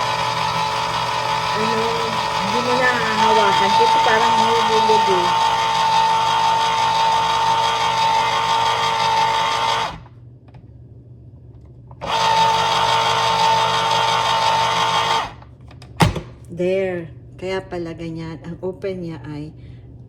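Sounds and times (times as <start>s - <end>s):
electric can opener whirring: 0.0s - 10.2s, 11.9s - 16.3s.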